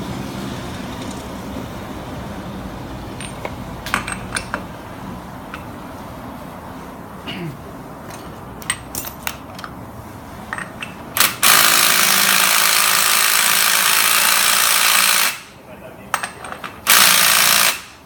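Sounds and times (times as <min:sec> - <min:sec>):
air tool hissing and rattling: 0:11.2 - 0:15.5.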